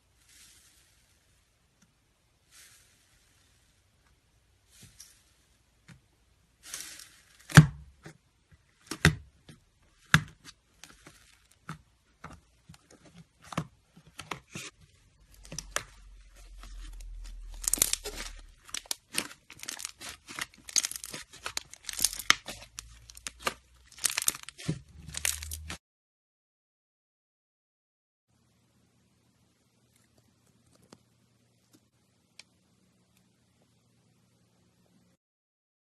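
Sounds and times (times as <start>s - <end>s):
slime popping and crackling: 16.8s - 25.8s.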